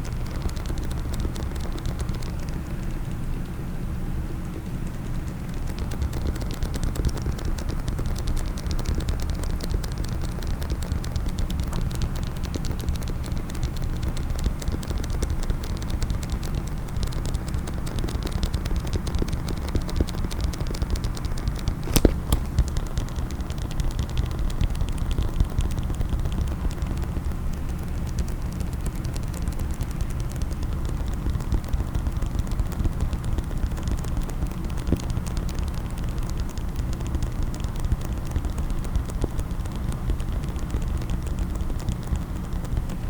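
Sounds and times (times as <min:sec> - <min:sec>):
fast tapping clicks on a case: 0:00.0 - 0:43.0.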